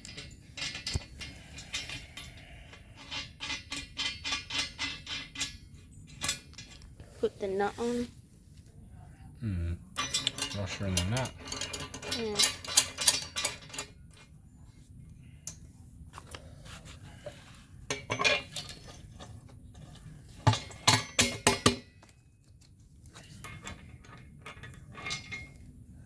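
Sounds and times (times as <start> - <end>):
metal washers and bolts clinking: 0.0 - 7.0, 10.0 - 14.3, 17.4 - 22.2, 23.0 - 25.8.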